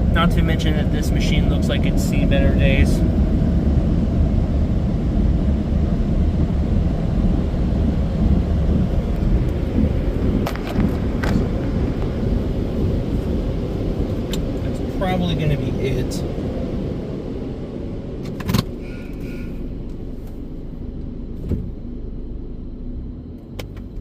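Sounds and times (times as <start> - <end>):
car wash air dryer blowers: 0.0 - 18.1.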